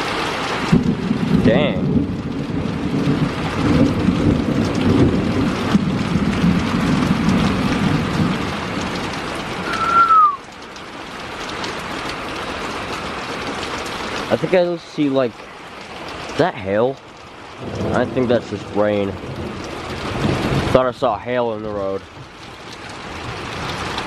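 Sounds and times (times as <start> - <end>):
heavy rain: 0.0 - 24.0
rolling thunder rumbling: 0.6 - 10.4, 17.2 - 24.0
falling whistle-like tone: 9.6 - 10.4.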